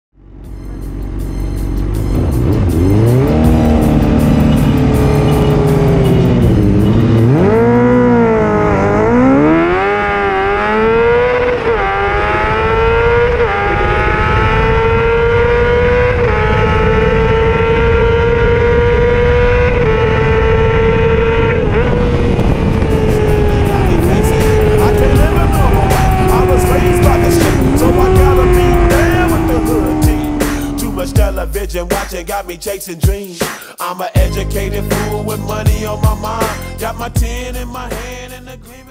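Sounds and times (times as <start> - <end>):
motorcycle engine accelerating: 0.2 - 32.7.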